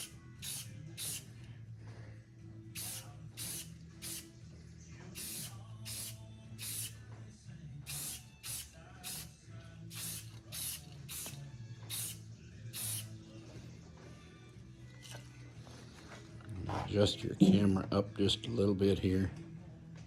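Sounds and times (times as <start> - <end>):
aerosol spray bursts: 0.0 - 1.3, 2.8 - 4.3, 5.2 - 7.0, 7.9 - 9.3, 9.9 - 13.2.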